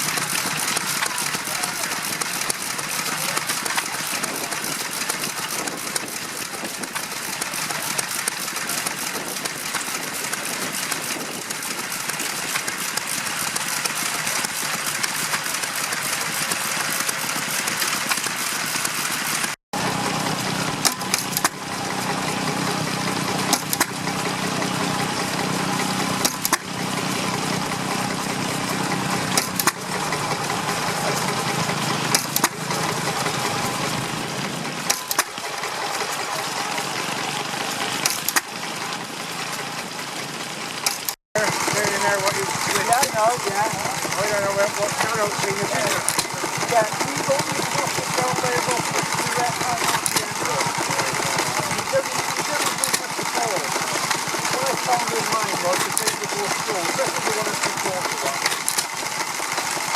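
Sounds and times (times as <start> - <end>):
sharp engine knocks: 0.0 - 36.1
engine humming: 0.0 - 59.9
engine mechanical clatter: 0.0 - 59.9.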